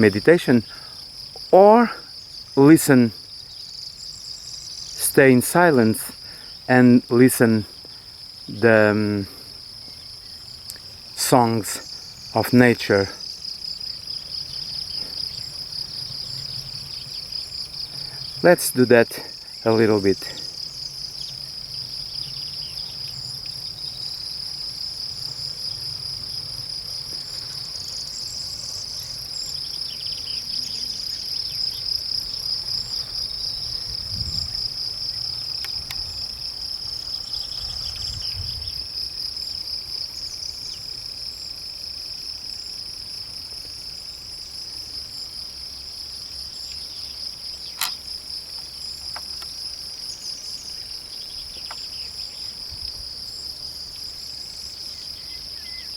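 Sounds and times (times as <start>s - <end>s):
crickets trilling: 0.0s - 55.9s
sharp click: 47.8s - 48.0s.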